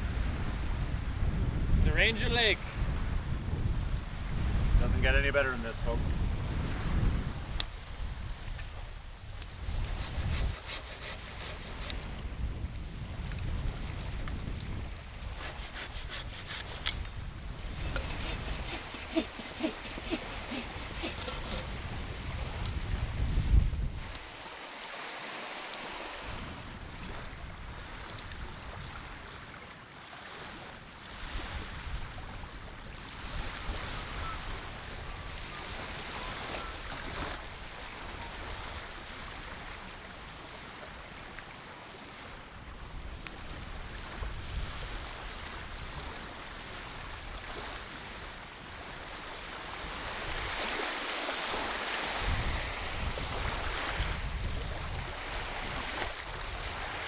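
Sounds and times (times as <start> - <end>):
wind buffeting microphone: 0.0 - 24.2, 52.1 - 57.0
wind blowing: 5.7 - 24.4
small waves washing in: 43.4 - 57.0.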